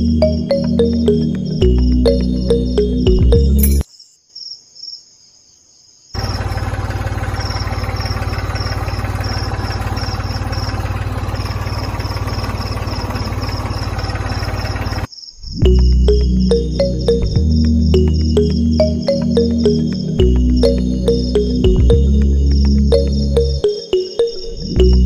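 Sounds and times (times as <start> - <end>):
high chirps: 0.0 - 3.9, 15.5 - 25.0
loud pulsing engine: 6.2 - 15.1, 15.7 - 25.0.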